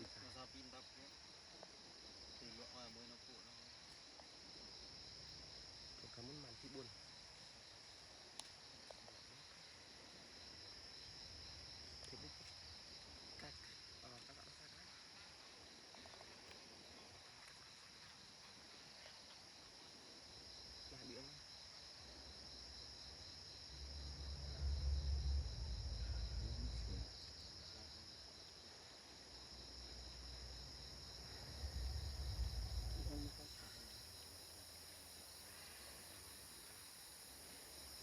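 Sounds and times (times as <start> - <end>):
high-pitched insect chorus: 0.0 - 38.0
deep low rumble: 23.9 - 27.2, 31.2 - 33.4.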